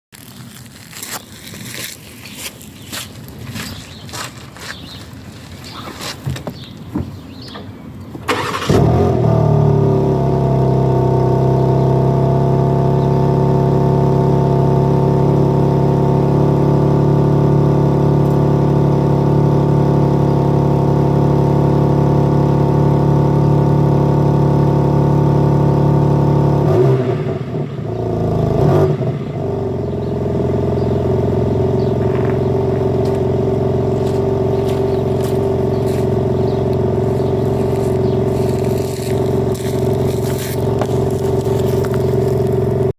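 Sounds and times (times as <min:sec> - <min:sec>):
car engine starting and idling: 0:06.2 - 0:42.9.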